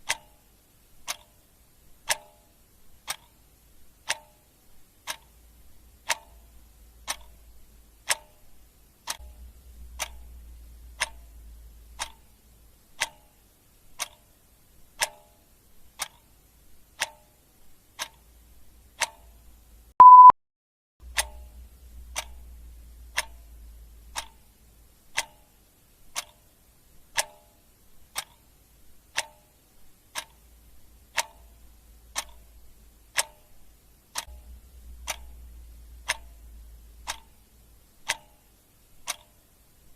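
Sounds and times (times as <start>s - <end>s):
clock ticking: 0.0s - 20.3s, 21.0s - 39.9s
short high beep: 20.0s - 20.4s.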